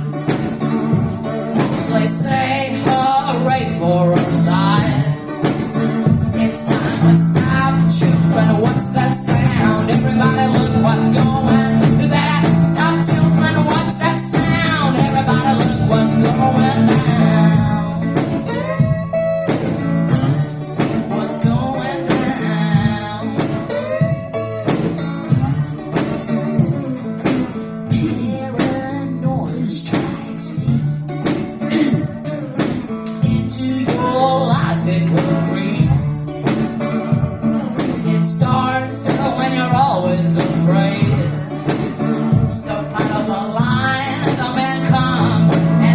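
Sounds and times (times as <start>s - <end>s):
guitar: 0.0s - 45.9s
percussion hits: 0.0s - 45.9s
person singing: 0.0s - 45.9s.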